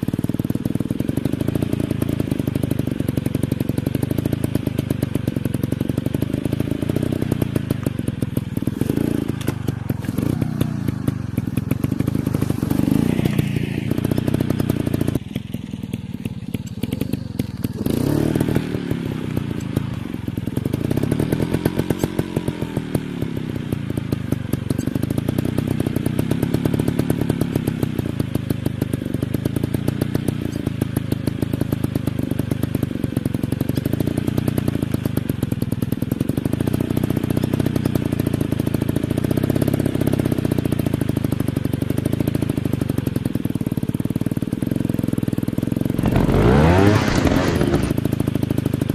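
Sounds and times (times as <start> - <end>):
dirt bike engines revving: 6.2 - 15.2, 16.2 - 22.1, 45.9 - 48.0.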